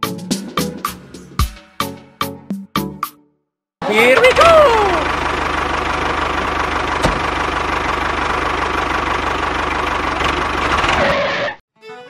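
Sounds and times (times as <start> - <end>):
tractor engine chugging: 3.9 - 11.4.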